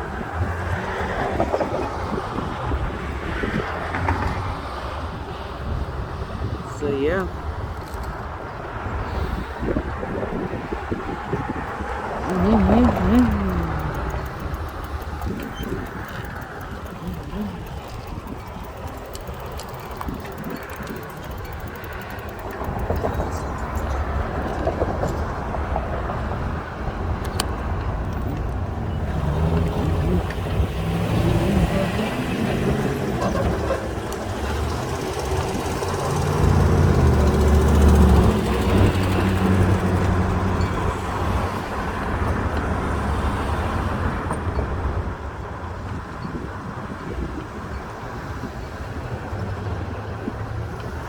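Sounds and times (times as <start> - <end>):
low traffic rumble: 0.0 - 51.0
vehicle engine passing: 11.4 - 26.2, 27.9 - 42.2.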